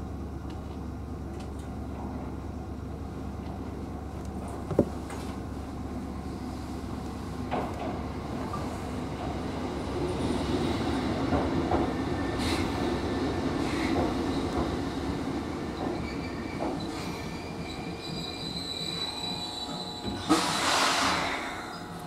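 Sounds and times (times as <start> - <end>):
short rush of hiss: 20.3 - 21.7.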